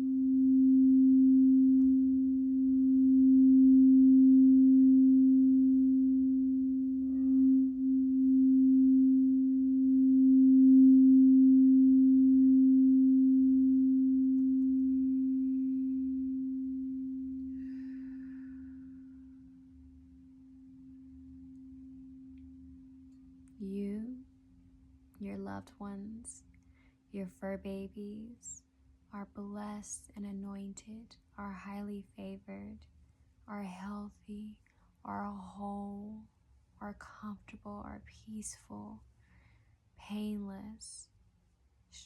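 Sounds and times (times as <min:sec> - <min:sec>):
crystal singing bowl tone: 0:00.0 - 0:24.2.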